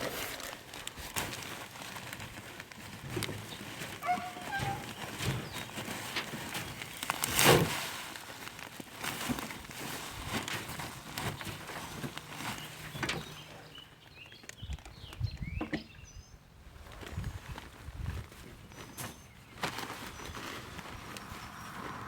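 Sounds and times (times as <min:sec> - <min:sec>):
rustling: 0:00.0 - 0:14.6, 0:16.8 - 0:22.0.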